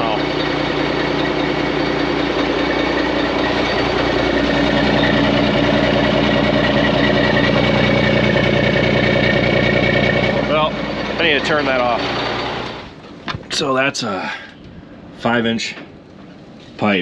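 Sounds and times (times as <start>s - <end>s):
loud truck engine idling: 0.0s - 13.3s.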